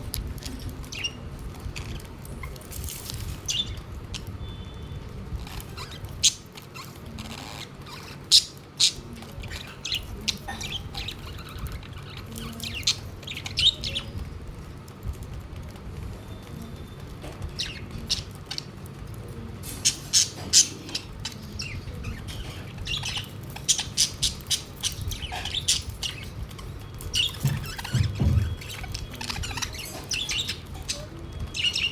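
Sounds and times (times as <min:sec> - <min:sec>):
budgerigars chirping and squawking: 0:05.4 - 0:14.2, 0:17.5 - 0:18.7, 0:19.6 - 0:31.9.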